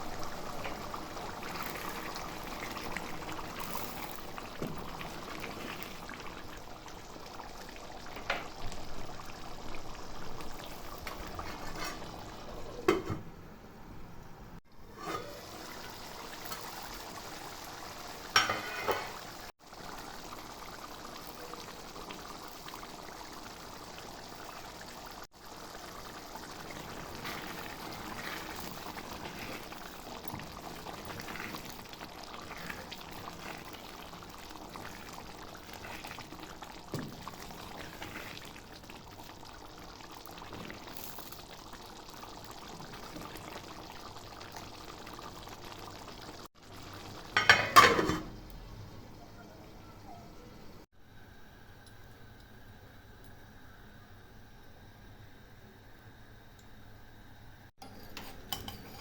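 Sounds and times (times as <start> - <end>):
curry bubbling in a pot: 0.0 - 12.9, 14.6 - 48.5.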